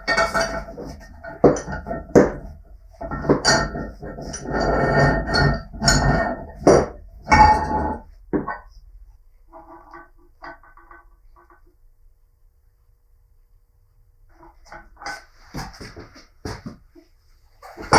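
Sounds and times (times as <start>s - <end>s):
metallic scraping clatter: 0.0s - 8.8s.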